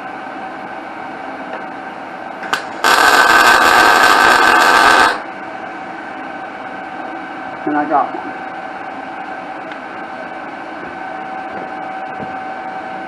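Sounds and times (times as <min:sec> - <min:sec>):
welder arc buzzing: 0:02.5 - 0:05.3.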